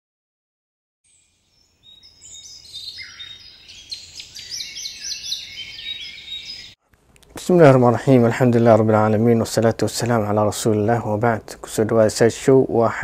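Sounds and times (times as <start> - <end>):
songbirds chirping and singing: 1.1 - 6.8.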